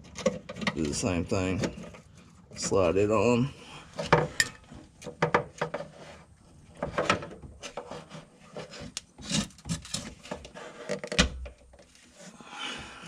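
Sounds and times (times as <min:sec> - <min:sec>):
tool scraping on fuel line fitting: 0:03.9 - 0:12.4.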